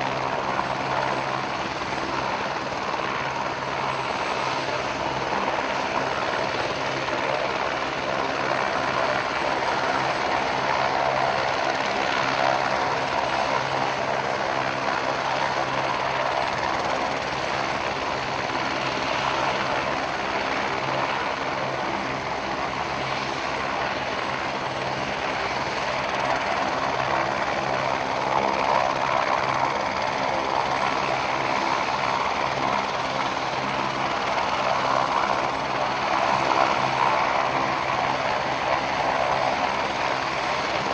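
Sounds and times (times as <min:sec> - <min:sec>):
helicopter rotor drone: 0:00.0 - 0:40.9.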